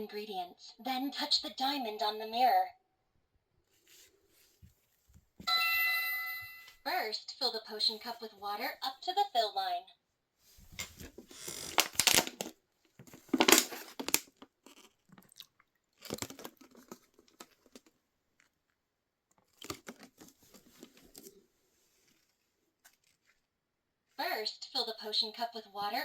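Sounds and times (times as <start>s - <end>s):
plastic toy parts rustling: 10.8s - 15.3s, 16.0s - 18.6s, 19.4s - 21.4s, 22.0s - 23.5s.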